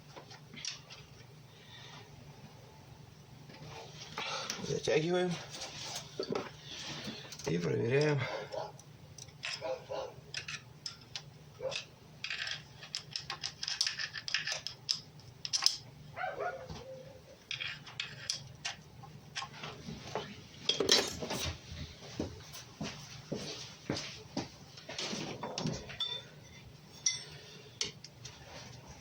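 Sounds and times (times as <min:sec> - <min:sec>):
tools and metal parts clinking: 0:09.2 - 0:15.8, 0:17.4 - 0:18.8, 0:20.7 - 0:21.6, 0:25.2 - 0:28.2.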